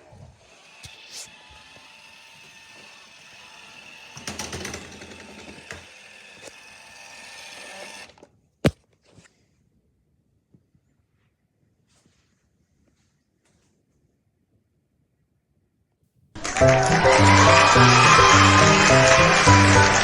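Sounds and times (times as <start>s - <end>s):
robot vacuum motor whine: 0.0s - 8.2s, 16.4s - 20.0s.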